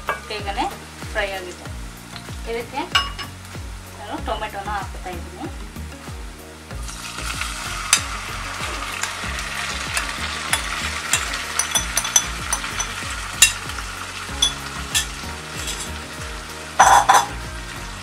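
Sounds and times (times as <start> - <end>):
tomatoes sizzling in hot oil: 0.0 - 18.0
spoon scraping a plate: 10.0 - 13.6, 14.4 - 16.0, 16.8 - 17.4.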